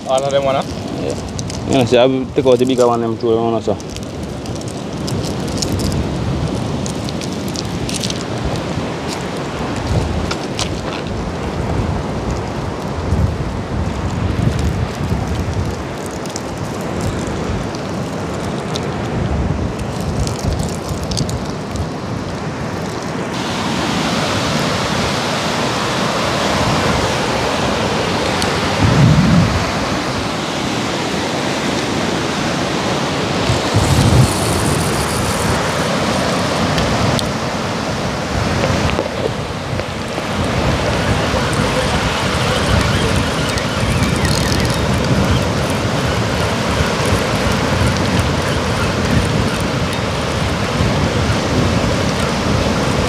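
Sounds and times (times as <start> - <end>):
heavy rain: 0.0 - 53.0
wind on the microphone: 0.0 - 53.0
low rumbles: 28.7 - 30.2.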